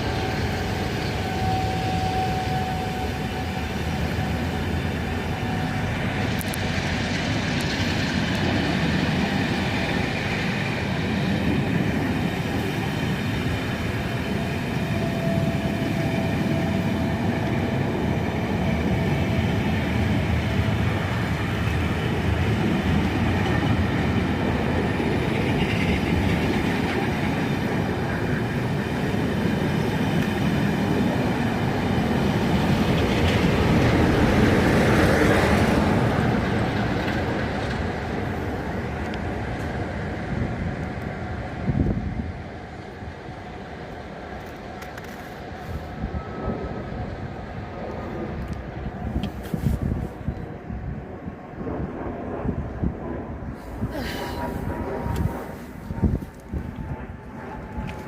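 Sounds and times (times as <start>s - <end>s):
train rumbling along track: 0.0s - 58.0s.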